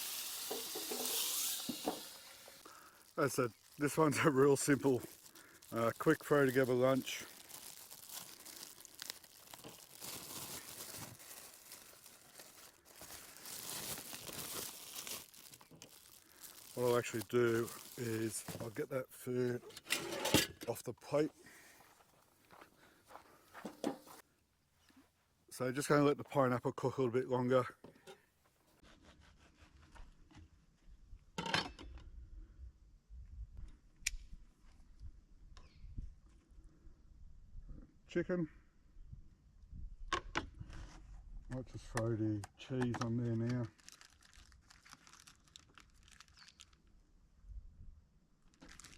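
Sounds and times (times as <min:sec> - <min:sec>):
food sizzling on hot plate: 0:00.0 - 0:02.6.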